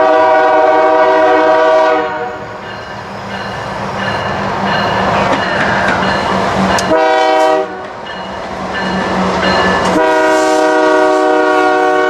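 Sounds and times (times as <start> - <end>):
locomotive air horn chord: 0.0 - 2.4, 6.9 - 7.9, 9.9 - 12.0
rail noise: 0.0 - 12.0
diesel locomotive rumble: 0.8 - 10.7.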